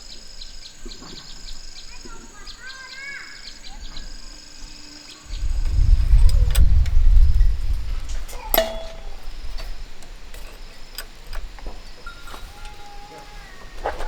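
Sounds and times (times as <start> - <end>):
light metallic clinks and taps: 8.4 - 12.4.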